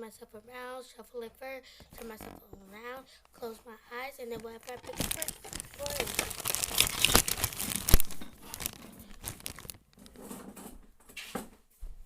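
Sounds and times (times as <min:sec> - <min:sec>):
plastic bags crinkling: 0:01.8 - 0:02.6, 0:04.2 - 0:10.4.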